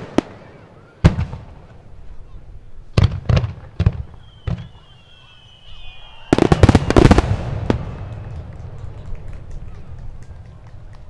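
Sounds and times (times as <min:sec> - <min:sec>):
volley of firework bangs: 0:00.0 - 0:11.0
firework bang: 0:03.0 - 0:10.3
firework whistle: 0:03.8 - 0:08.4.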